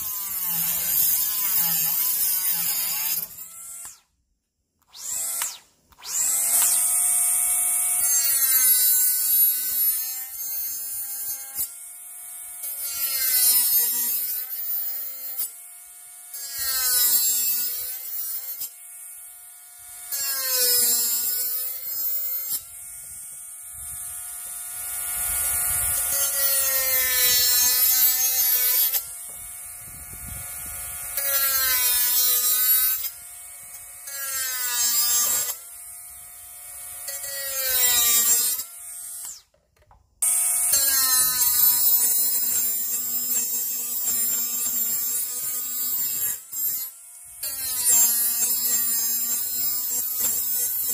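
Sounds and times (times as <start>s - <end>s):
angle grinder motor whine: 4.8s - 9.8s, 19.1s - 50.9s.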